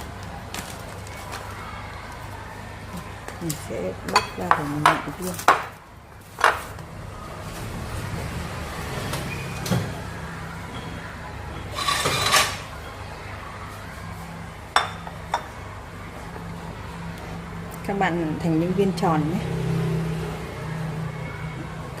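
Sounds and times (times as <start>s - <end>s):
kitchenware knocking and clattering: 6.4s - 6.7s, 11.8s - 12.7s.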